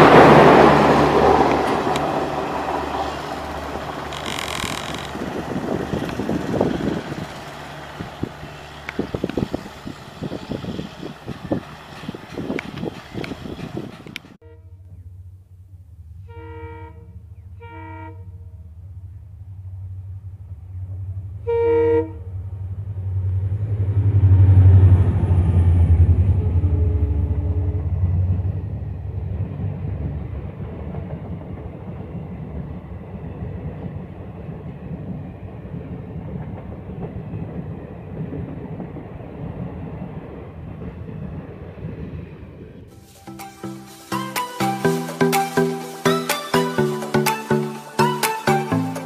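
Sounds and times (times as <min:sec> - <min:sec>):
train wheel clatter: 0:00.0 - 0:14.4
locomotive engine rumble: 0:00.0 - 0:49.0
locomotive horn blasts: 0:14.4 - 0:15.0, 0:16.2 - 0:18.7, 0:21.4 - 0:22.4, 0:26.3 - 0:28.0.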